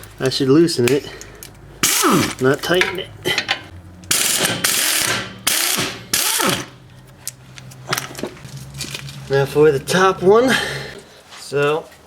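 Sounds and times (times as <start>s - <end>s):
impact wrench hammering: 1.8s - 6.8s.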